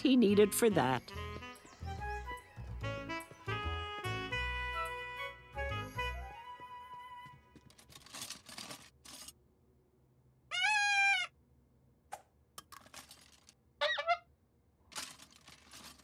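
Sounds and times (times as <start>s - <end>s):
rustling and clatter: 7.5s - 9.4s, 12.7s - 13.6s, 14.9s - 16.0s.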